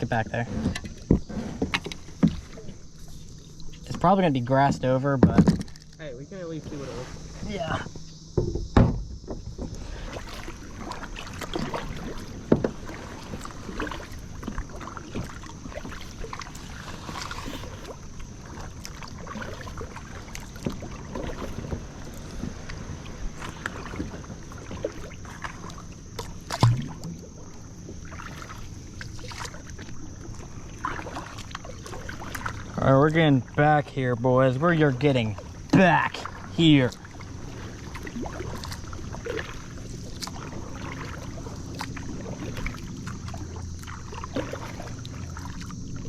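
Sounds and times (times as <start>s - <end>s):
water sloshing around kayak hull: 0.0s - 46.0s
knocks against kayak hull: 4.6s - 5.8s, 8.0s - 9.8s, 11.6s - 12.9s, 26.5s - 27.2s.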